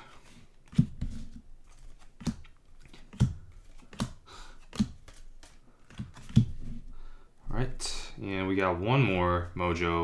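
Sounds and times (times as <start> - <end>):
cards snapping: 1.6 - 6.5.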